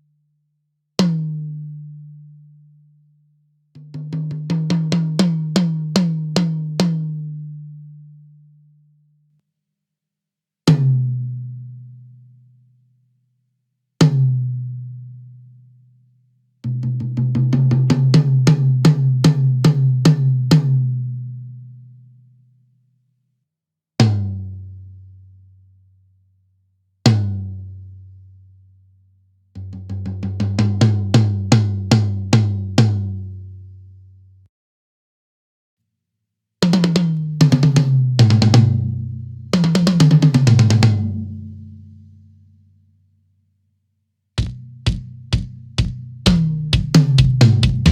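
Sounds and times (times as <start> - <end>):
tom drum hits ringing: 44.4 - 47.9.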